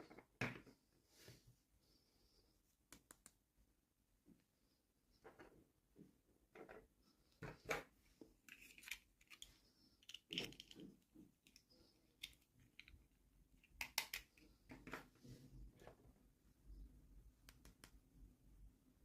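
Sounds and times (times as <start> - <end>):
plastic toy parts clicking: 8.5 - 14.5.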